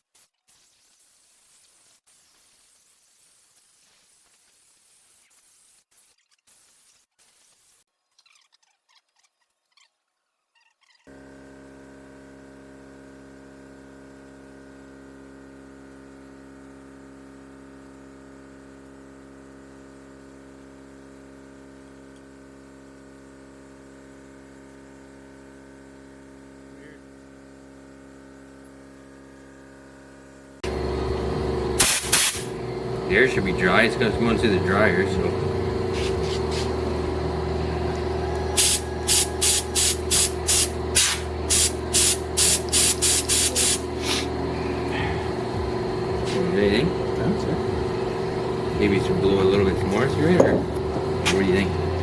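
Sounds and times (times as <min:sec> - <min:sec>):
steady machine hum: 0:11.1 - 0:52.0
compressed air blow gun hissing: 0:30.6 - 0:47.3.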